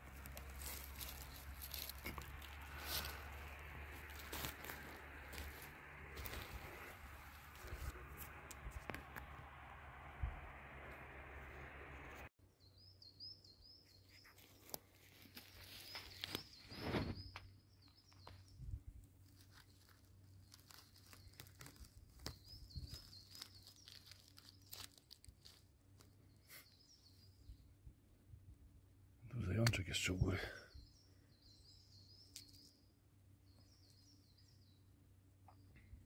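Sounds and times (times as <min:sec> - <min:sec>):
footsteps in dry leaves: 0:00.0 - 0:09.3, 0:14.3 - 0:17.2, 0:19.2 - 0:26.2
small bird singing: 0:12.5 - 0:14.8, 0:15.4 - 0:27.8, 0:29.3 - 0:36.0.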